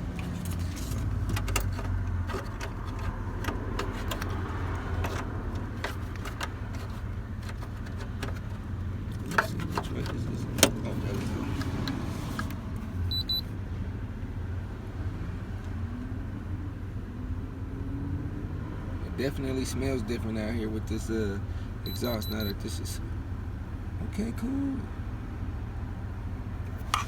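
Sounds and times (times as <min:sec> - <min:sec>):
engine low rumble: 0:00.0 - 0:27.0
high double beep: 0:21.9 - 0:22.6.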